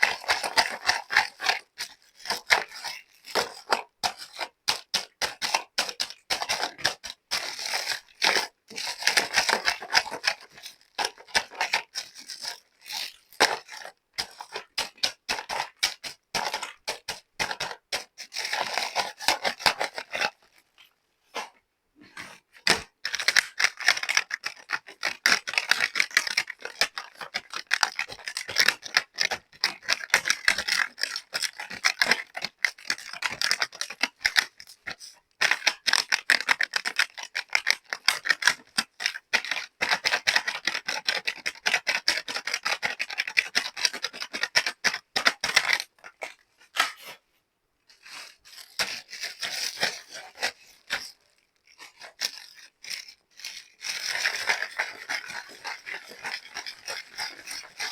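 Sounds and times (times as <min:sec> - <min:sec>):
plastic packaging crinkling: 0:22.6 - 0:47.1, 0:47.9 - 0:57.9.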